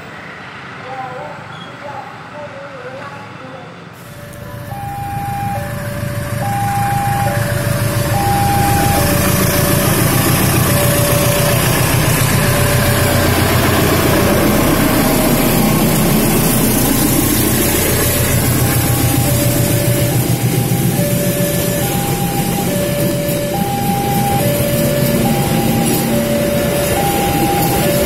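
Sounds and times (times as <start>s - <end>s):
diesel locomotive engine rumble: 4.0s - 28.0s
train wheels on rails: 4.0s - 28.0s
level-crossing two-note chime: 4.2s - 13.4s, 17.8s - 28.0s.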